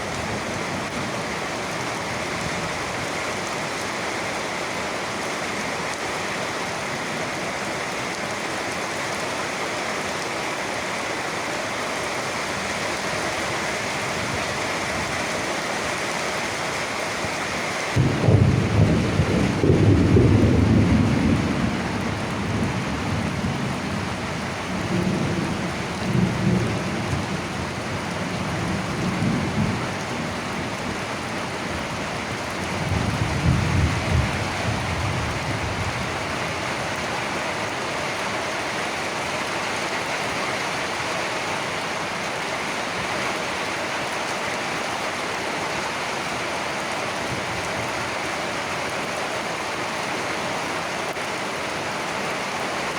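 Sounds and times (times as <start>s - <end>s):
steady rain: 0.0s - 52.9s
thunder rumbling: 18.0s - 27.3s, 32.4s - 36.4s.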